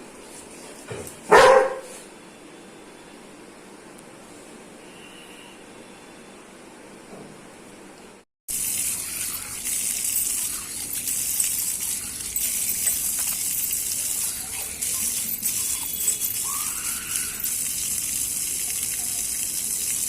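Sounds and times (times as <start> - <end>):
water running and splashing: 8.5 - 20.0.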